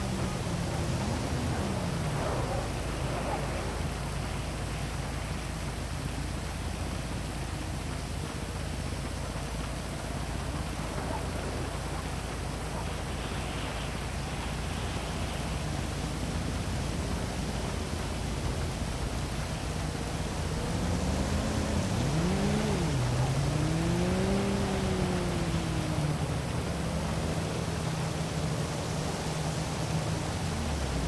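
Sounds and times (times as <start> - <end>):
passing vehicle engine: 0.0 - 4.8, 12.8 - 31.0
heavy rain falling: 0.0 - 31.0.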